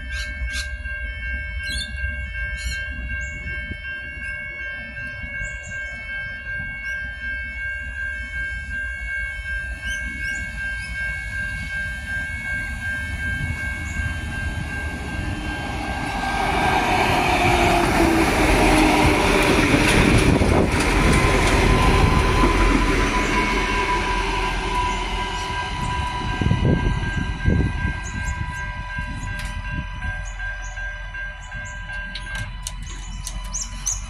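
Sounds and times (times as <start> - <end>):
diesel railcars passing: 0.0 - 34.0
level crossing warning bells: 0.0 - 34.0
wheels clicking over rail joints: 14.9 - 23.5.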